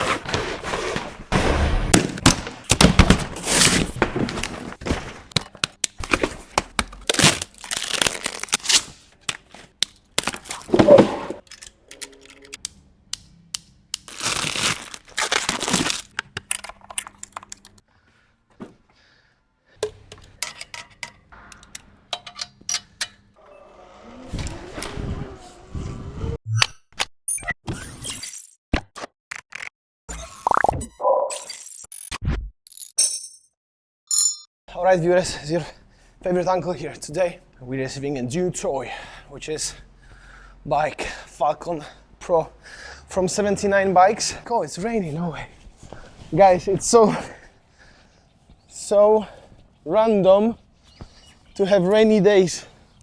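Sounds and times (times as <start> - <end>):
sharp cracks and knocks: 1.9 - 10.7
packaging tearing and crinkling: 2.2 - 10.8, 14.0 - 17.8.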